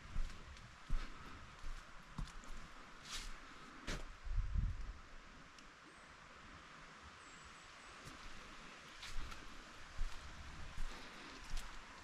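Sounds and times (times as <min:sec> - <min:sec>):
footsteps on forest trail: 0:00.0 - 0:04.1, 0:08.0 - 0:12.0
faint steady hiss: 0:00.0 - 0:12.0.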